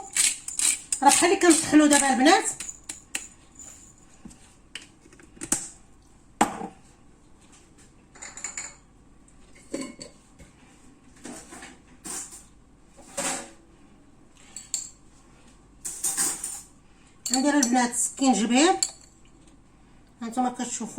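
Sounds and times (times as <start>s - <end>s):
utensils clinking against bowl: 0.0s - 4.1s, 8.2s - 8.8s, 14.5s - 15.0s, 15.8s - 19.4s.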